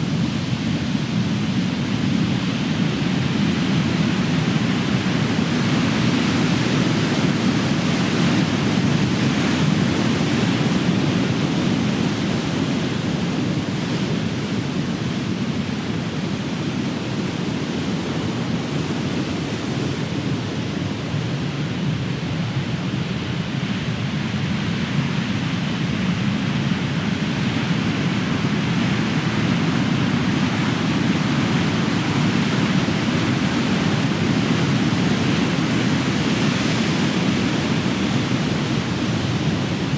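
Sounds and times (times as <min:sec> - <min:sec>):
ocean waves breaking: 0:28.7 - 0:39.9.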